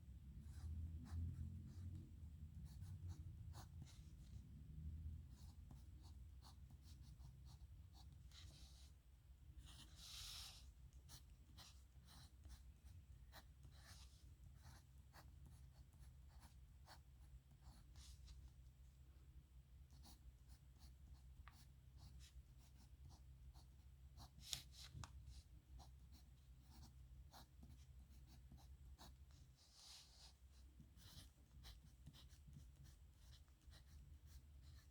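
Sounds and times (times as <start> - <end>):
pen scratching on paper: 0.5 - 1.9, 2.6 - 4.4, 9.6 - 18.4, 19.9 - 34.9.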